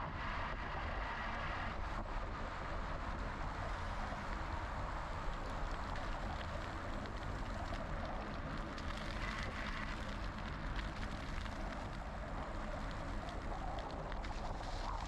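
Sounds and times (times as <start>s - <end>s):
wind rumble on microphone: 0.0s - 15.0s
faint irregular clicks: 5.3s - 15.0s.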